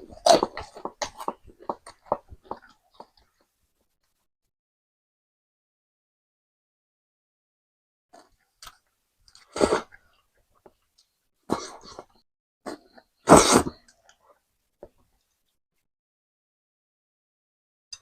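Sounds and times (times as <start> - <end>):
mouth sounds of eating: 0.0 - 3.4.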